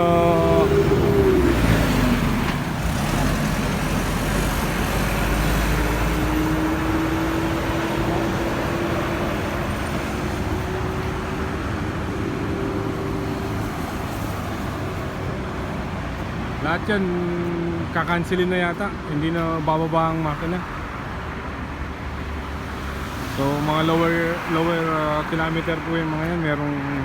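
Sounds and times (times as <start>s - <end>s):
faint rising engine tone: 0.0s - 10.4s
road traffic rumble: 0.0s - 27.0s.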